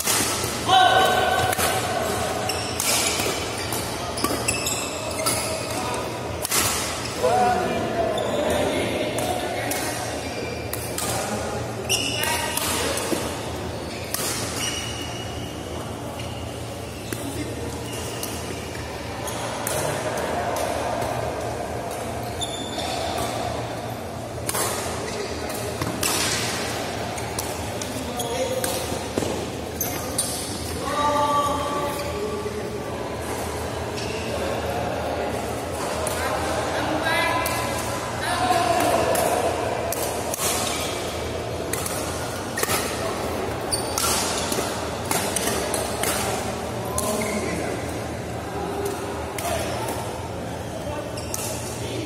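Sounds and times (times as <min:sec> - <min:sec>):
rackets hitting shuttlecock: 0:00.0 - 0:07.0, 0:38.6 - 0:47.1
murmur of voices in a hall: 0:00.0 - 0:52.0.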